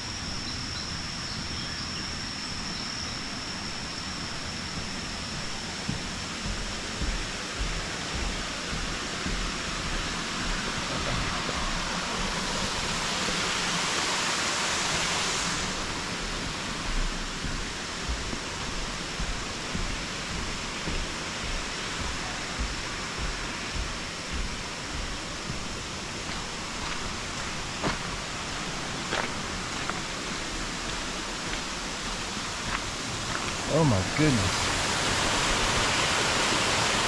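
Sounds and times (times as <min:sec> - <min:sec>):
steady rushing noise: 0:00.0 - 0:37.0
footsteps on paved path: 0:03.3 - 0:13.4, 0:14.9 - 0:33.8.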